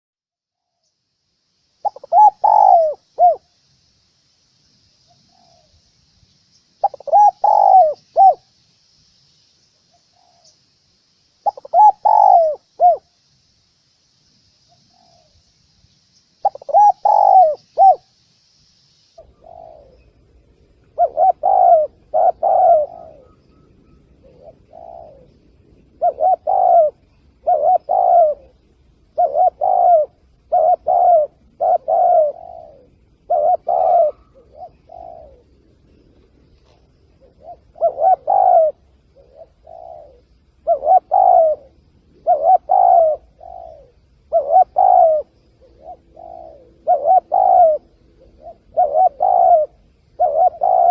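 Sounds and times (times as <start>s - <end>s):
dove cooing: 1.8s - 3.5s, 6.8s - 8.5s, 11.4s - 13.2s, 16.4s - 18.1s, 19.2s - 50.9s.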